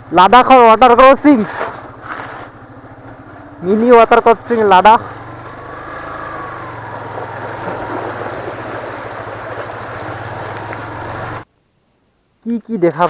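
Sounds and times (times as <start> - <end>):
motorcycle engine running: 1.2 - 11.5
water rushing: 4.4 - 11.5.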